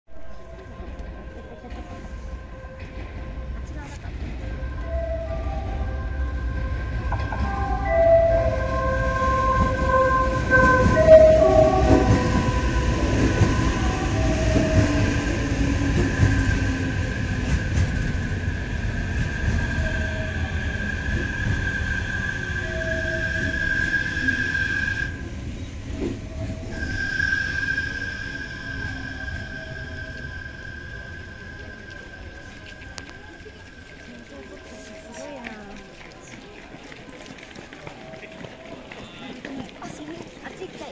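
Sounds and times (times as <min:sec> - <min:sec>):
train horn melody: 0:00.1 - 0:17.0, 0:19.4 - 0:33.0
train high whine: 0:00.1 - 0:35.4
train low rumble: 0:00.1 - 0:40.8.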